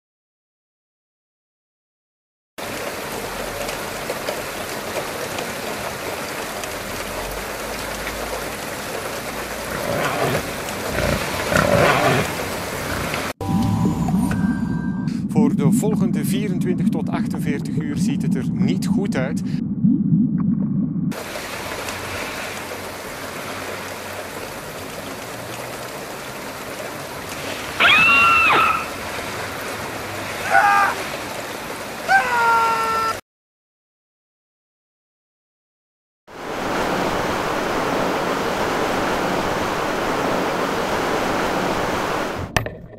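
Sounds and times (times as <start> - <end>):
heavy rain pouring: 2.6 - 13.8, 21.1 - 33.2, 36.3 - 42.5.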